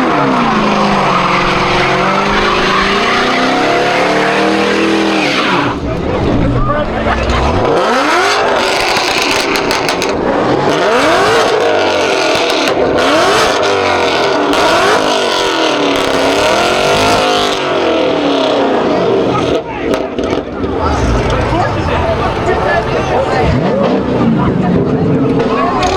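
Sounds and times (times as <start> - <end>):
car engine revving: 0.0 - 12.4, 20.3 - 24.4
steady rushing noise: 20.7 - 23.6.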